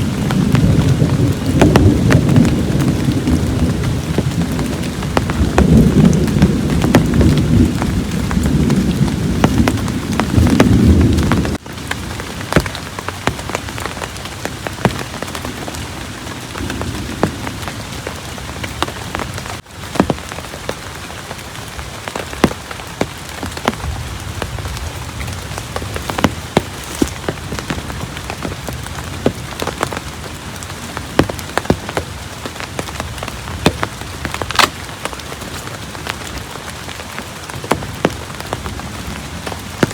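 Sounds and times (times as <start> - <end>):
low rumble of thunder: 0.0 - 11.6
heavy rain falling: 0.0 - 39.9
raindrops ticking on a surface: 0.0 - 39.9.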